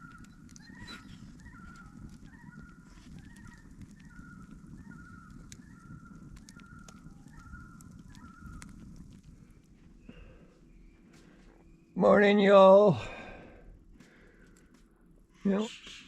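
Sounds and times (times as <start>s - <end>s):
birds calling: 0.0s - 12.0s
low rumbling background: 0.0s - 15.5s.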